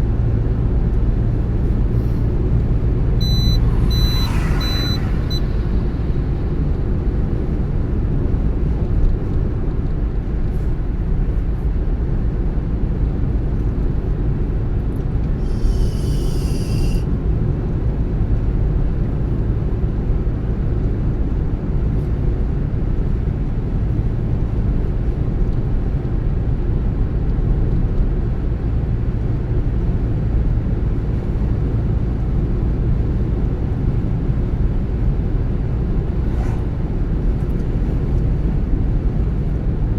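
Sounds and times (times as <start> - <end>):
car engine and tyre rumble: 0.0 - 39.9
brief high hiss: 15.4 - 17.1.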